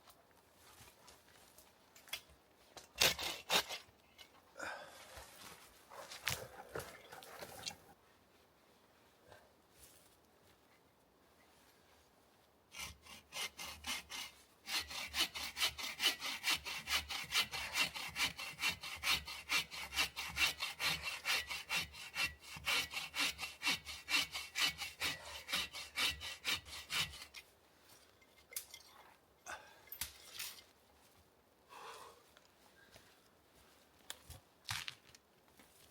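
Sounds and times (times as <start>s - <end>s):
hand saw cutting wood: 3.0s - 3.9s, 12.7s - 27.5s.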